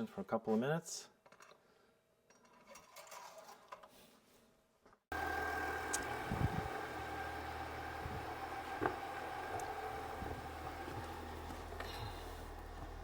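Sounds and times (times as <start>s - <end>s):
diesel engine idling: 5.1s - 13.0s.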